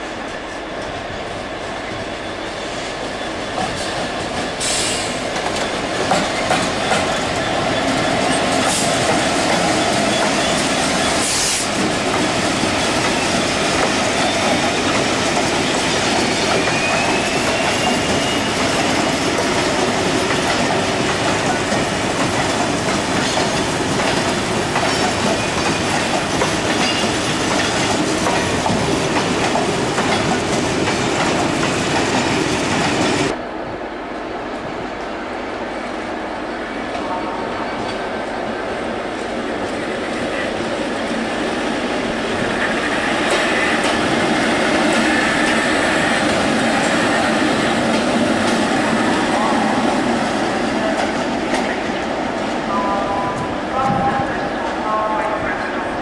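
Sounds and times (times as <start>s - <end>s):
wheels clacking over rail joints: 3.5s - 33.4s
wheel squeal: 15.6s - 18.8s.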